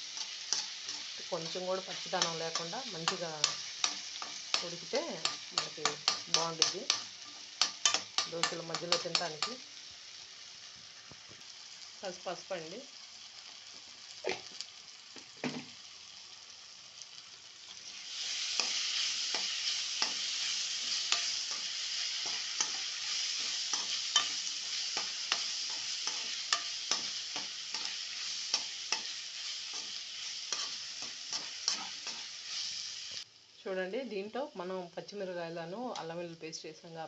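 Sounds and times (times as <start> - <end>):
food sizzling in a pan: 0.0 - 37.0
spatula scraping a pan: 17.7 - 32.9.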